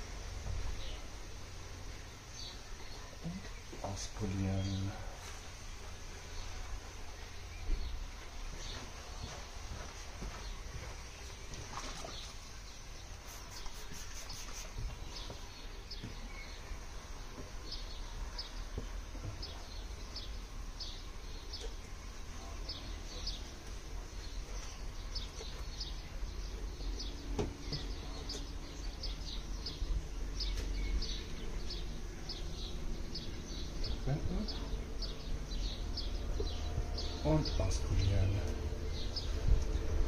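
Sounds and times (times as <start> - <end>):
bird chirping: 10.3 - 40.0
spray bottle spritzes: 13.2 - 14.8
low outdoor rumble: 14.8 - 40.0.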